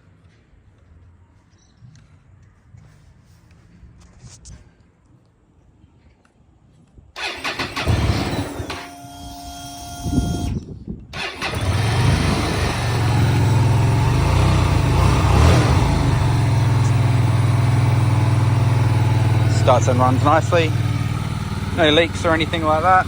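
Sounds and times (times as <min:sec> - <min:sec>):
motorcycle engine starting and running: 0:07.2 - 0:23.0.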